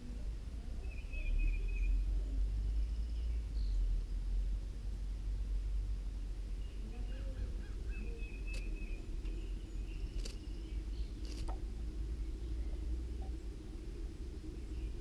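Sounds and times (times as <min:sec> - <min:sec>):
low background rumble: 0:00.0 - 0:15.0
nestlings peeping: 0:06.2 - 0:13.8.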